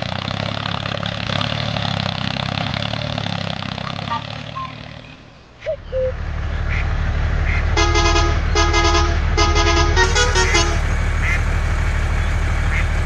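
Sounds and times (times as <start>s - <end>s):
low truck engine: 0.0s - 13.0s
truck horn honking: 3.8s - 5.0s, 6.7s - 13.0s.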